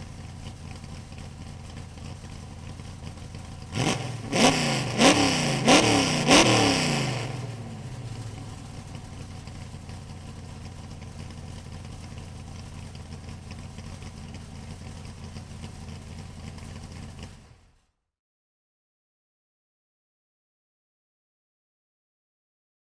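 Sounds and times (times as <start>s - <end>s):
vehicle engine idling: 0.0s - 17.8s.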